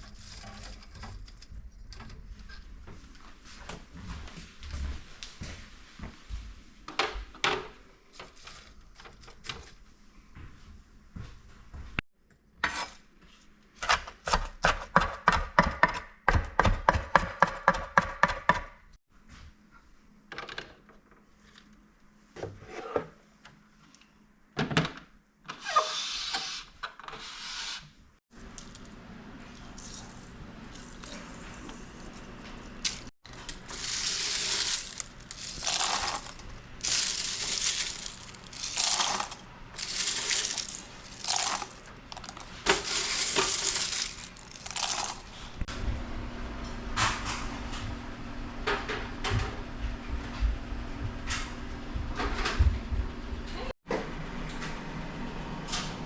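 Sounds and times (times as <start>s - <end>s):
knife chopping on cutting board: 14.3s - 18.8s.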